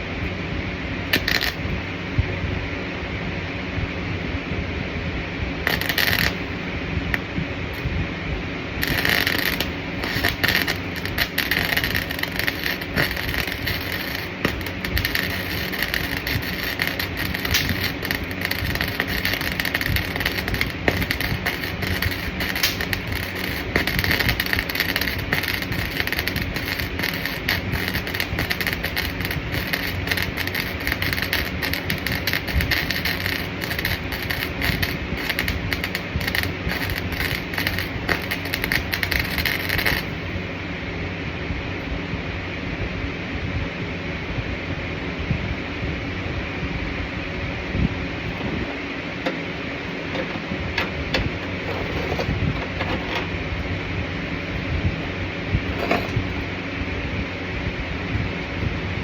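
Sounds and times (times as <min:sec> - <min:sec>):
welding arc crackling: 0:01.0 - 0:02.2, 0:05.6 - 0:07.9, 0:08.7 - 0:40.6, 0:48.2 - 0:56.8.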